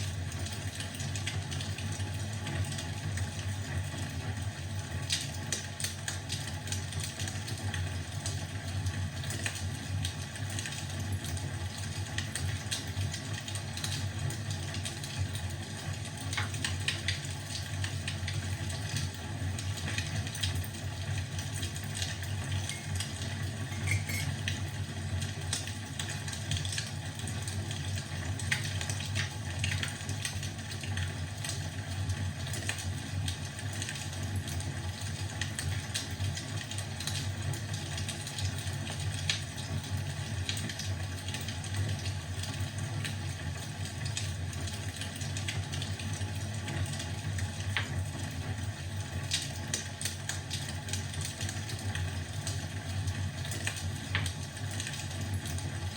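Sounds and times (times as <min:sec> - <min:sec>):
wood fire crackling: 0:10.6 - 0:31.8.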